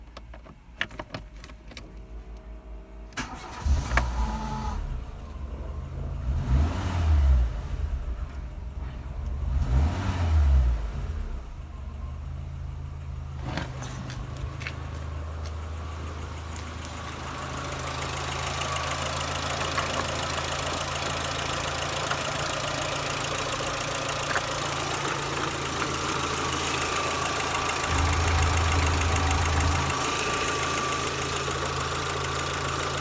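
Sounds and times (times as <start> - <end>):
car engine revving and idling: 2.4 - 33.0
starter motor cranking: 17.4 - 33.0.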